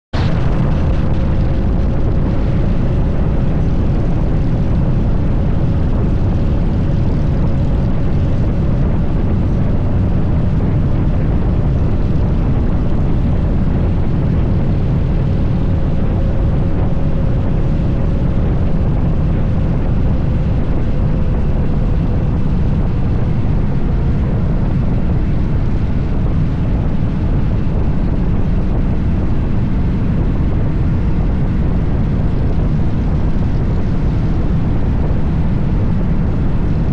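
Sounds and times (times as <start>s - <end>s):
motorcycle engine rumbling: 0.2s - 29.2s.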